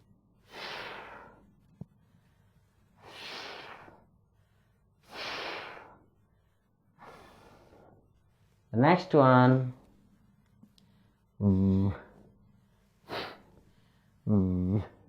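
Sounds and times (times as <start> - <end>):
man pronouncing f sound: 11.4 - 12.2, 14.2 - 15.0.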